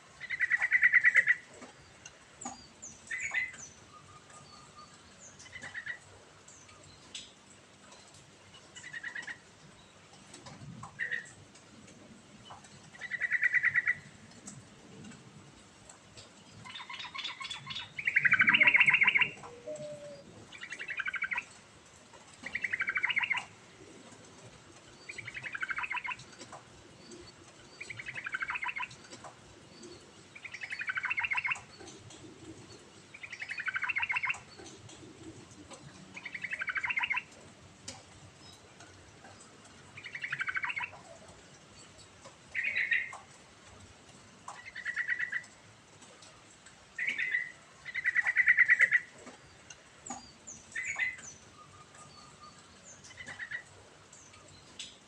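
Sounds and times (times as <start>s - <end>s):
bulbul singing: 16.7s - 21.5s.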